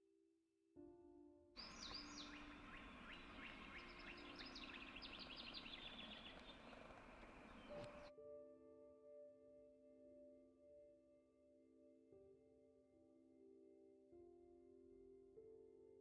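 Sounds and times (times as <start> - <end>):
soft music with ringing tones: 0.8 - 16.0
bird chirping quickly: 1.6 - 8.1
outdoor background hiss: 1.6 - 8.1.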